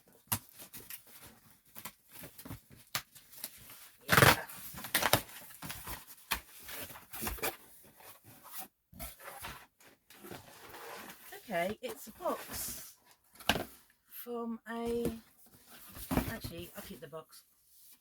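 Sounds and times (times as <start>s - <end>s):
cardboard flaps and packing rustling: 0.0s - 13.9s, 14.8s - 18.0s
packing tape ripping: 4.0s - 5.3s.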